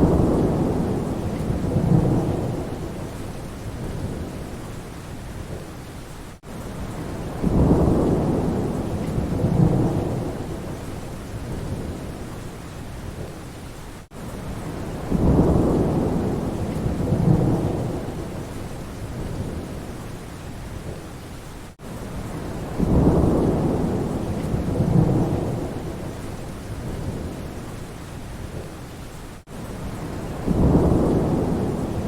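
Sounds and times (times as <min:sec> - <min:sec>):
thunder rolling: 0:00.0 - 0:03.2, 0:30.2 - 0:32.0
steady rain: 0:00.0 - 0:32.0.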